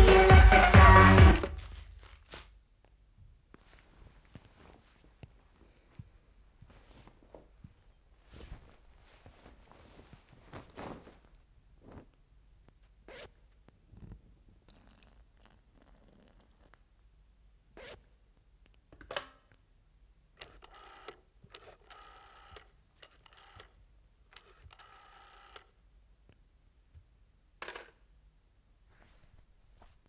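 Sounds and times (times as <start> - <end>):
rotary dial whirring and clicking: 20.4 - 25.7.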